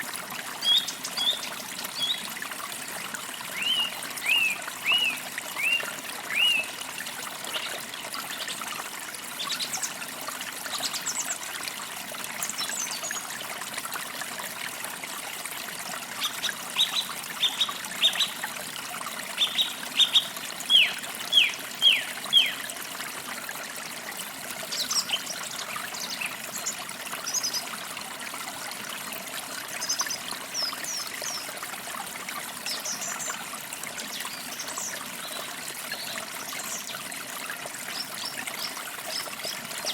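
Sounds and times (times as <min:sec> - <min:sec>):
forest stream trickling: 0:00.0 - 0:39.9
songbirds singing: 0:00.6 - 0:02.3, 0:03.5 - 0:06.7, 0:16.2 - 0:18.4, 0:19.3 - 0:22.7, 0:24.7 - 0:27.7.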